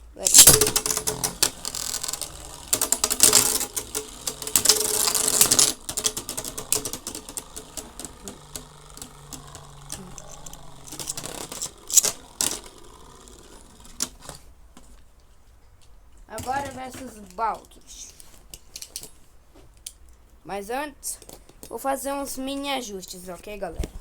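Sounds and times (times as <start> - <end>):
spinning tops whirring and rattling: 0.0 - 14.5
spinning tops clashing: 0.1 - 14.4.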